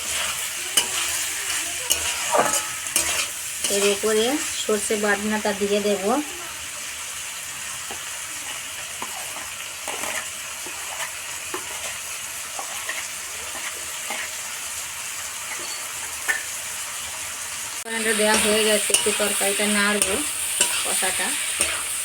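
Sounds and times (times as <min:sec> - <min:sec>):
prawns sizzling in a pan: 0:00.0 - 0:22.0
spoon scraping and tapping: 0:01.9 - 0:03.9, 0:18.3 - 0:21.9.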